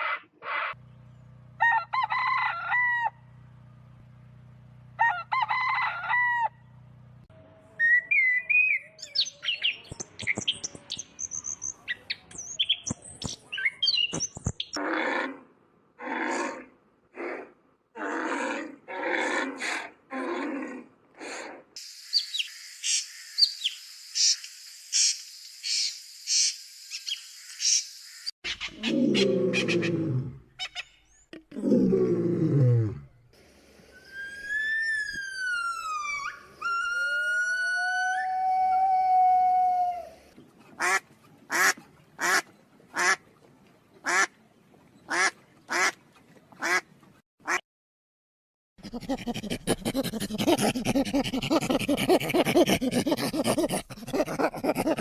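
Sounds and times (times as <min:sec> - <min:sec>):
long deep falling calls: 0:33.9 - 0:40.1
whistled calls: 0:34.0 - 0:38.3.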